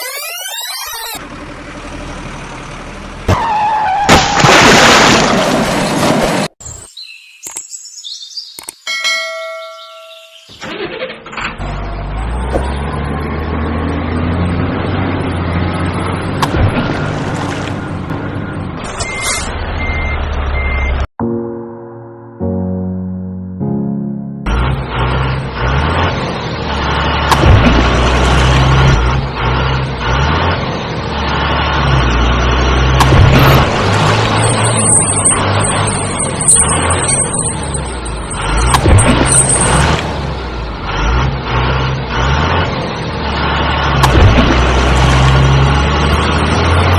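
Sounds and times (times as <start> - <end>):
vehicle engine low rumble: 1.2 - 4.0, 11.2 - 21.1, 24.4 - 46.9
sharp click: 8.6 - 8.8
bell ding: 8.9 - 10.5
high bird-like chirps: 9.7 - 10.6.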